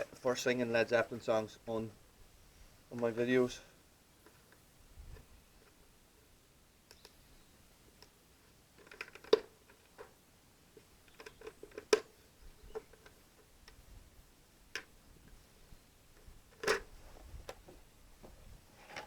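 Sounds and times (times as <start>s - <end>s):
clicks and knocks of handling: 8.8s - 10.2s, 10.8s - 13.8s, 16.2s - 16.9s.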